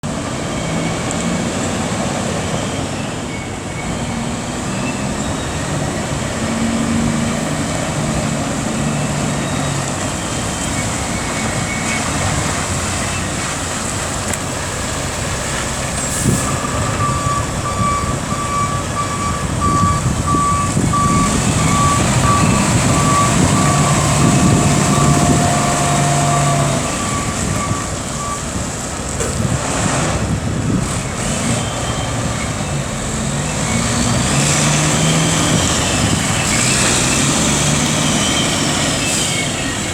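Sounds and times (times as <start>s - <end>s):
truck diesel engine running: 0.1s - 39.9s
reversing alarm beeping: 2.5s - 13.3s, 16.1s - 28.6s.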